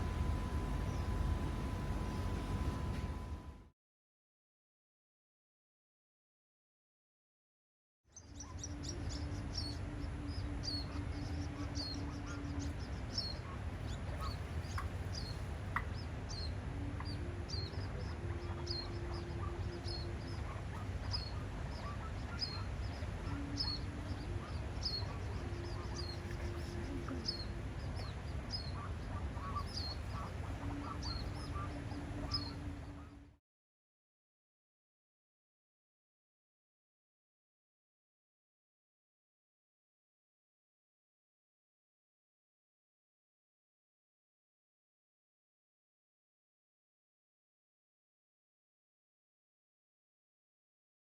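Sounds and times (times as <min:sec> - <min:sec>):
birds chirping: 0:00.0 - 0:03.6, 0:08.2 - 0:33.3
low rumble: 0:00.0 - 0:03.7
steady low hum: 0:00.0 - 0:03.7, 0:08.3 - 0:33.4.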